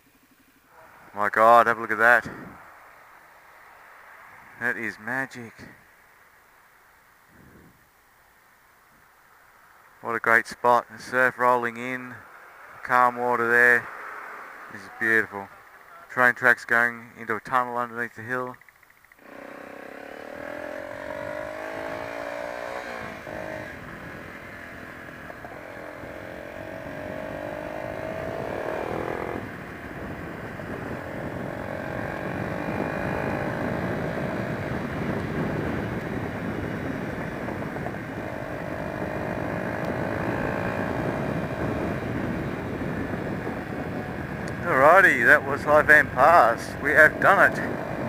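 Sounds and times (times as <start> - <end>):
rushing wind noise: 2.1 - 2.8, 19.4 - 48.0
motorcycle engine pulling through gears: 18.6 - 29.7, 30.4 - 44.6.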